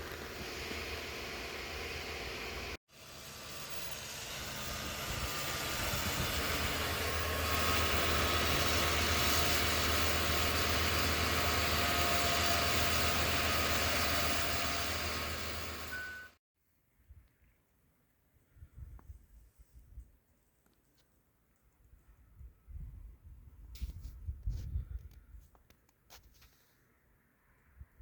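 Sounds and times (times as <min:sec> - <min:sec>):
vehicle engine hum with hiss: 0:00.0 - 0:16.3.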